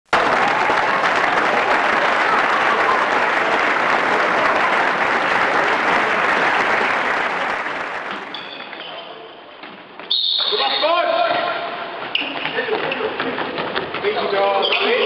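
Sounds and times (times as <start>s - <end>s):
spectators applauding: 0.1s - 8.4s.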